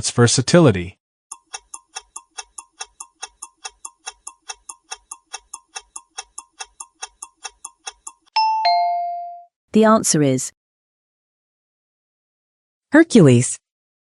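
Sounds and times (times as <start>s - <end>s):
rapid clock ticking: 1.3s - 8.4s.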